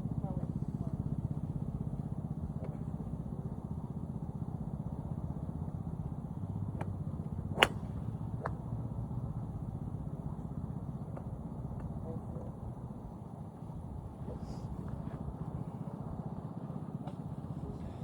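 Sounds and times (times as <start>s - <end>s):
steady low rumble: 0.0s - 18.0s
golf club striking ball: 6.4s - 12.0s.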